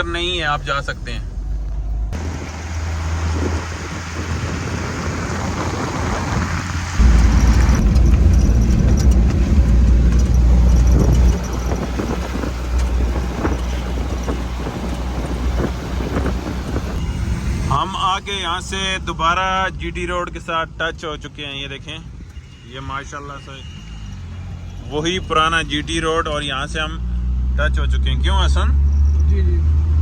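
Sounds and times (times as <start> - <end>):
pickup engine and road noise: 0.0 - 30.0
loud low rumble: 1.2 - 19.6.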